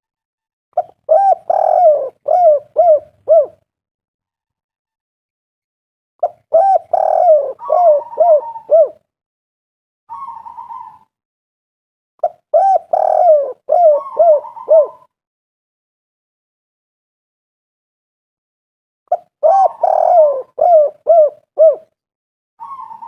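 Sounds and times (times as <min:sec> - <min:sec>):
dove cooing: 0:00.8 - 0:03.6, 0:06.2 - 0:09.0, 0:10.1 - 0:11.1, 0:12.2 - 0:15.1, 0:19.1 - 0:22.0, 0:22.6 - 0:23.0.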